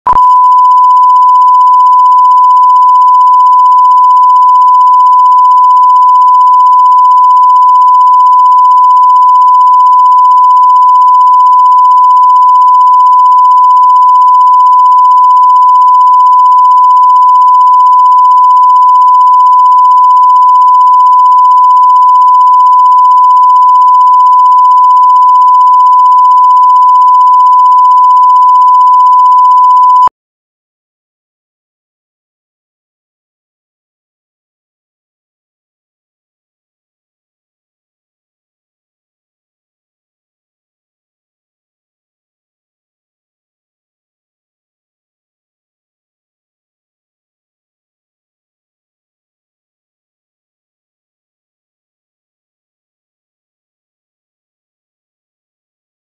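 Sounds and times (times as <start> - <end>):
test tone: 0.1 - 30.1.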